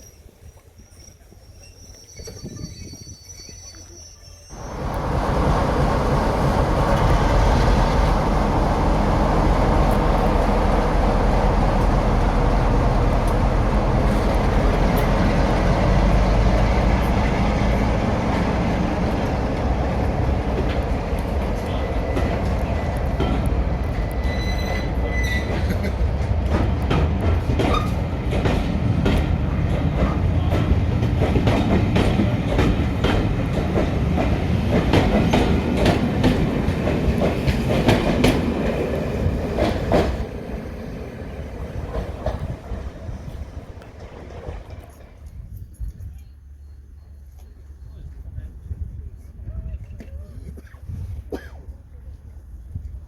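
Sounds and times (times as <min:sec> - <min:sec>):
diesel engine rumble: 0:04.5 - 0:24.2
train wheels clicking on rails: 0:04.5 - 0:46.4.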